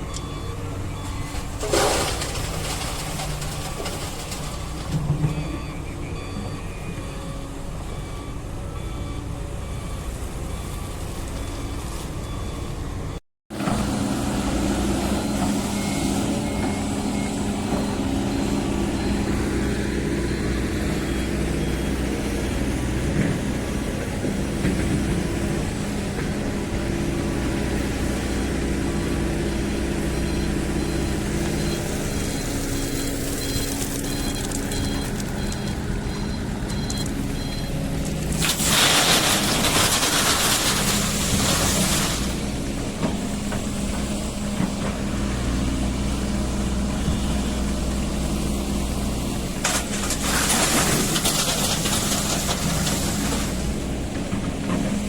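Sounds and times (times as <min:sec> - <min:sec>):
excavator diesel engines running: 0:00.0 - 0:55.0
faint high beeps: 0:05.3 - 0:10.8, 0:30.2 - 0:37.8.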